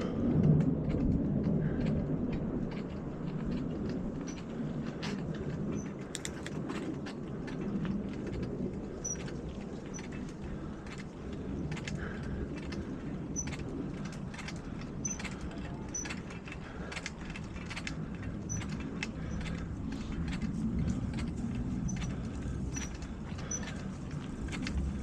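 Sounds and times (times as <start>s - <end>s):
bike clicking and rattling: 0.0s - 25.0s
tyres and wind rumbling: 0.0s - 25.0s.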